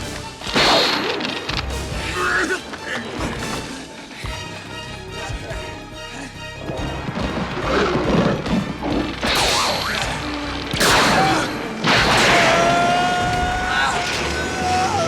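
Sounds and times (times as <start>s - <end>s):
action film music: 0.0s - 15.0s
loud crashes: 7.6s - 14.6s.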